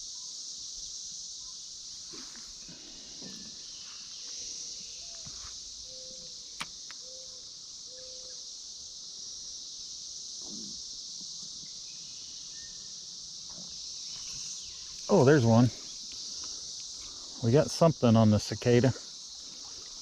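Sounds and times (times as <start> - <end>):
cicadas droning: 0.0 - 20.0
sharp click: 6.6 - 7.0.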